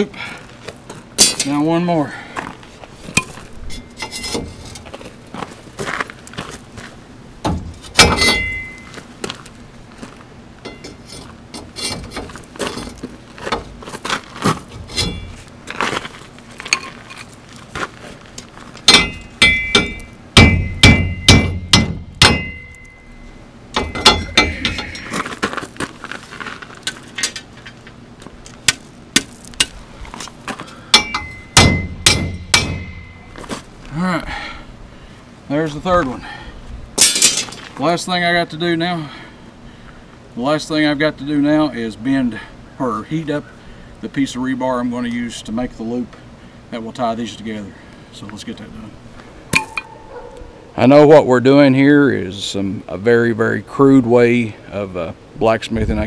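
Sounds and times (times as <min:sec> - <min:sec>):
metal rebar clanking and ringing: 0:01.2 - 0:01.6, 0:03.2 - 0:04.6, 0:07.5 - 0:09.0, 0:10.6 - 0:11.2, 0:14.9 - 0:15.4, 0:18.9 - 0:25.2, 0:30.9 - 0:33.4, 0:37.0 - 0:37.6.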